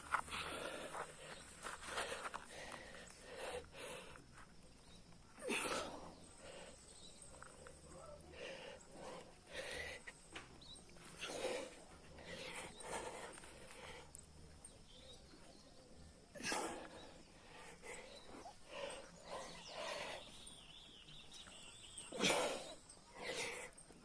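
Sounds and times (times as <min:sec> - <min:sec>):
bird chirping song: 0:06.0 - 0:24.0.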